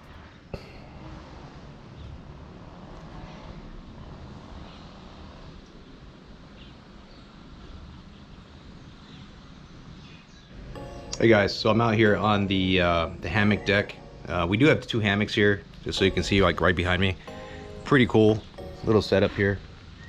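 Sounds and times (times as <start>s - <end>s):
faint high chirps: 10.6s - 20.0s.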